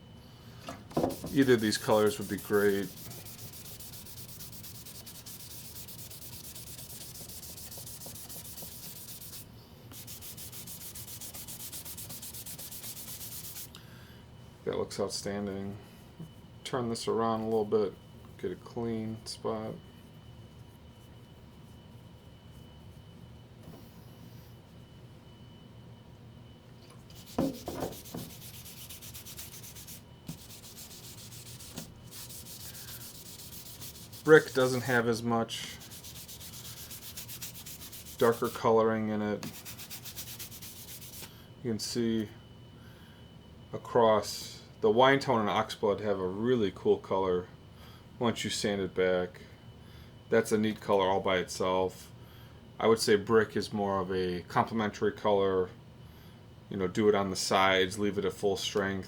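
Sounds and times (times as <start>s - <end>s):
sandpaper rasping on wood: 1.1s - 9.4s, 10.0s - 13.7s, 27.2s - 35.0s, 35.8s - 38.6s, 39.4s - 41.3s.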